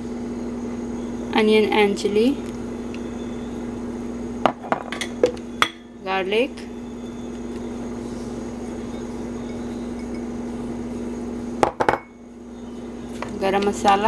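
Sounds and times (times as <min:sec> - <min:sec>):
steady low hum: 0:00.0 - 0:14.0
spoon clinking against bowl: 0:08.8 - 0:10.3.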